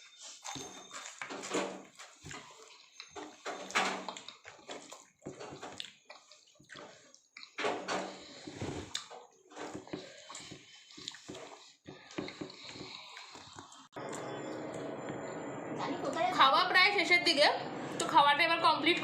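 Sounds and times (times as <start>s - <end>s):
water splashing and sloshing: 0.3s - 14.3s.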